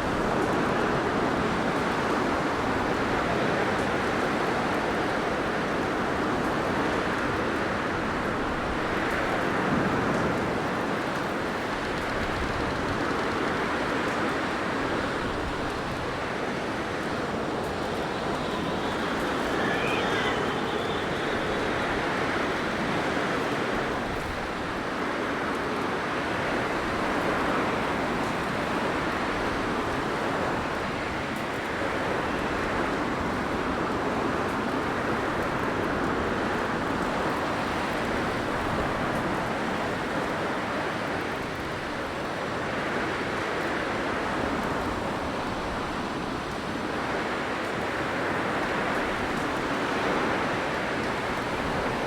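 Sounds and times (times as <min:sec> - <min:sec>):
blizzard wind blowing: 0:00.0 - 0:36.8.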